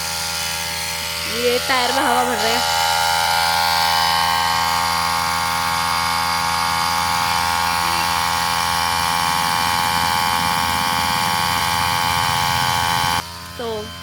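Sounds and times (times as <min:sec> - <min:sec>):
electric air compressor running: 0:00.0 - 0:14.0.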